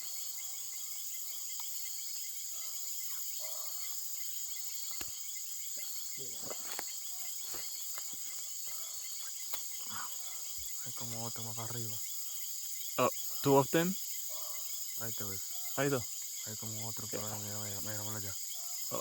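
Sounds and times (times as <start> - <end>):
crickets and insects trilling: 0.0 - 19.0.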